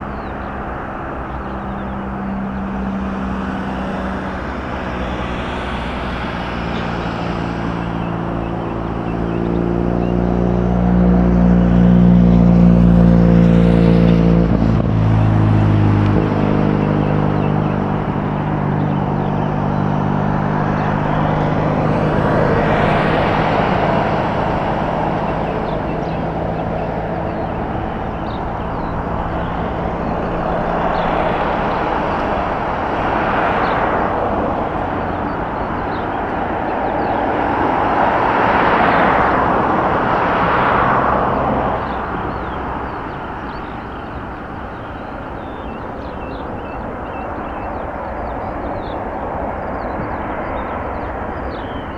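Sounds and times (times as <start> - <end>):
jet engines and air rushing: 0.0 - 10.2.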